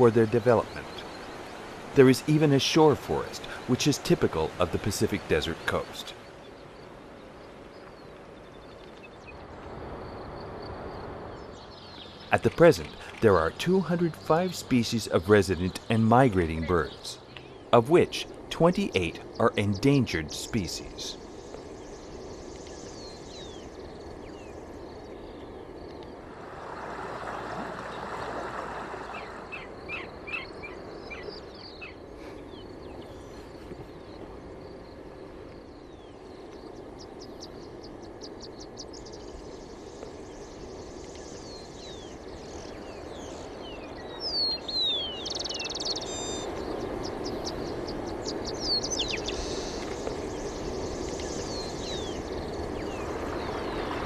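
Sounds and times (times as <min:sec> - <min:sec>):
rushing background noise: 0:00.0 - 0:54.0
birds chirping and whistling: 0:35.8 - 0:54.0.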